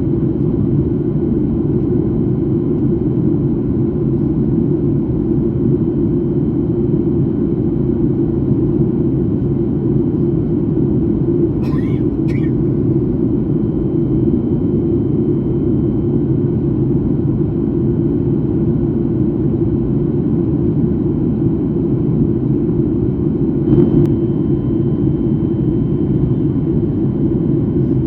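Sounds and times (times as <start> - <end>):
airliner cabin rumble: 8.6 - 13.5, 20.2 - 28.0.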